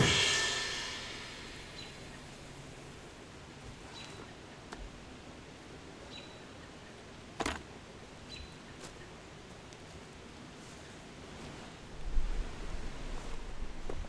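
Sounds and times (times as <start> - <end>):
high bird chirps: 1.6 - 2.4.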